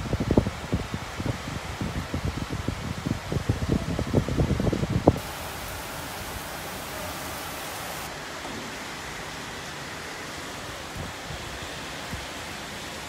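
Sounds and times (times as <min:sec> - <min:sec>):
strong wind: 0:00.0 - 0:08.1
heavy rain hissing: 0:04.7 - 0:13.0.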